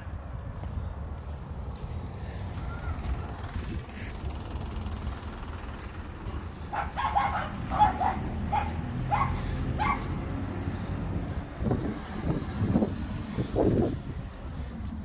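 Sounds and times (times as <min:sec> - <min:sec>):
steady low rumble: 0:00.0 - 0:15.0
dog yipping: 0:06.7 - 0:10.1.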